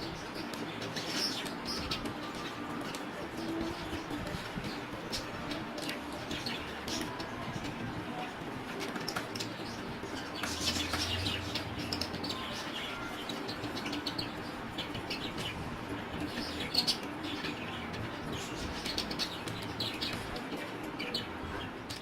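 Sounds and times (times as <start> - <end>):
budgerigars chirping and warbling: 0.0 - 2.7, 9.2 - 22.0.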